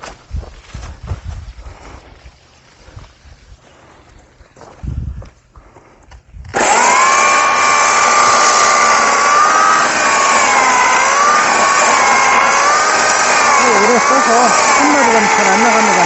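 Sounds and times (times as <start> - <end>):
electric saw cutting wood: 6.5 - 16.0.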